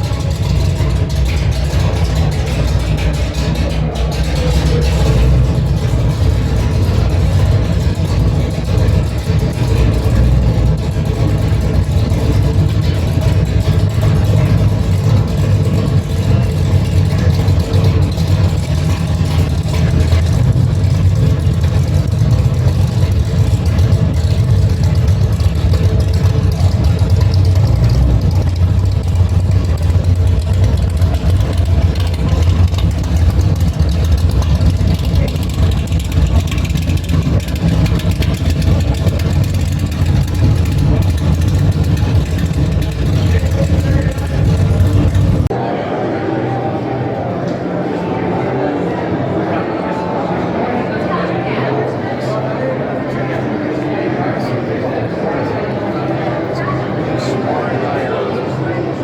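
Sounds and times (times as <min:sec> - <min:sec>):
car engine rumbling: 0:00.0 - 0:45.7.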